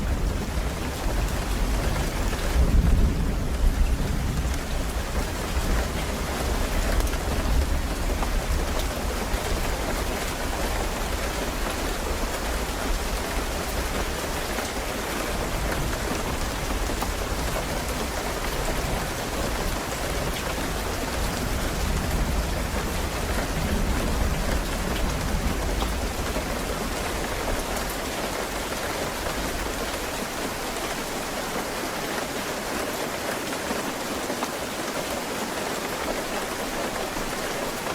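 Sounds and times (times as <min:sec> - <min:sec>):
low rumble of thunder: 0:00.0 - 0:30.1
rain drops pattering: 0:00.0 - 0:37.9
steady rain falling: 0:00.0 - 0:37.9.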